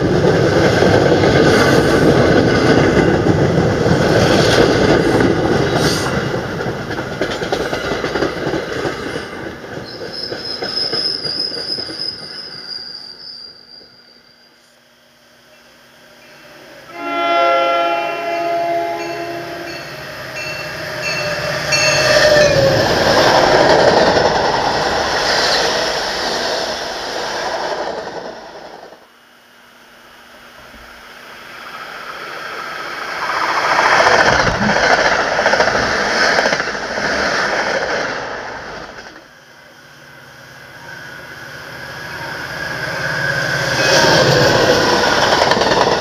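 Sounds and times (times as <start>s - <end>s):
train passing rush: 0.0s - 46.0s
train horn blasts: 16.5s - 22.6s.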